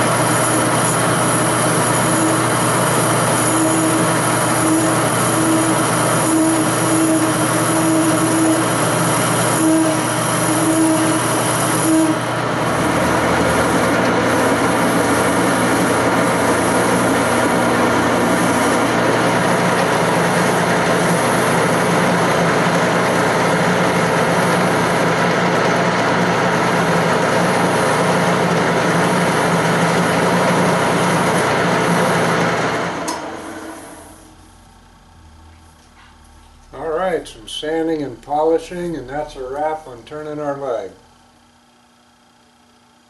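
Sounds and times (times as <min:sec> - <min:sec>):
tool cutting spinning wood: 0:00.0 - 0:34.4
wood lathe hum: 0:00.0 - 0:40.6.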